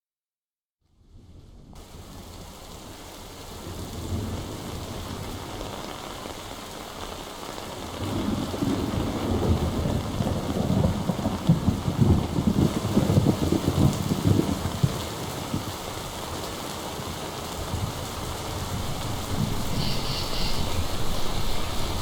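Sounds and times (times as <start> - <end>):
rain: 1.0 - 22.0
thunder rumbling: 7.8 - 15.9, 17.6 - 22.0.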